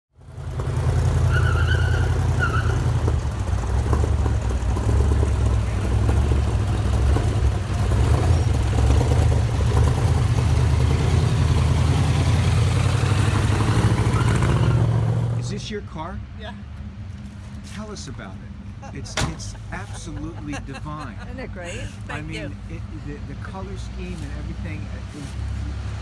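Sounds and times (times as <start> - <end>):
car engine running: 0.1 - 26.0.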